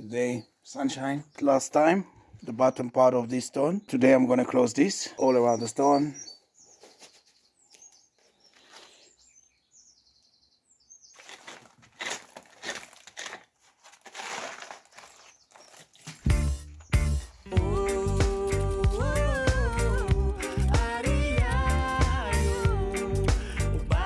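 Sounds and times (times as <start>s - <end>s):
small birds chirping: 0.0s - 11.8s, 14.6s - 24.0s
hand tools scraping mortar: 11.2s - 16.3s
music with heavy bass beat: 16.3s - 24.0s.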